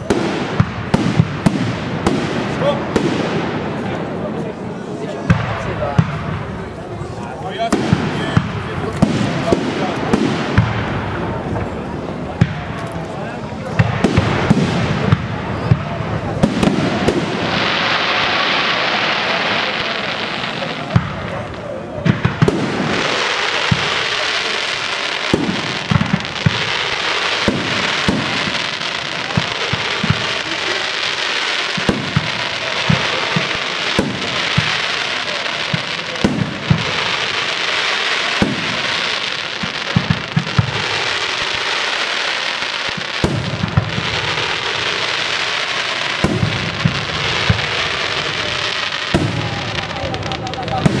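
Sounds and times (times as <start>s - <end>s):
fireworks crackling: 0.0s - 51.0s
fireworks shells bursting: 12.6s - 51.0s.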